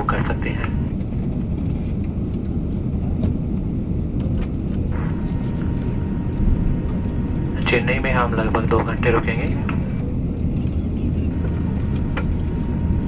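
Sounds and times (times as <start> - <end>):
faint steady hum: 0.0 - 1.1, 4.9 - 13.0
low rumble of engines: 0.0 - 13.0.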